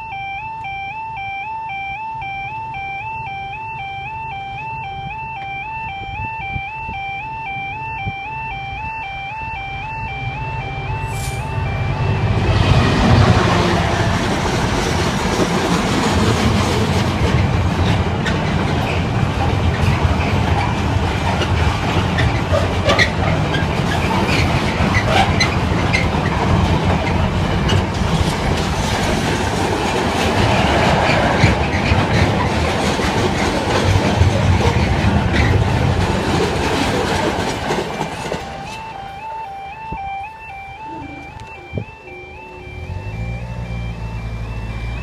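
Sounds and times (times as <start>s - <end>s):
diesel locomotive engine: 0.0s - 45.0s
wagon wheels rumbling and clacking: 13.0s - 38.8s.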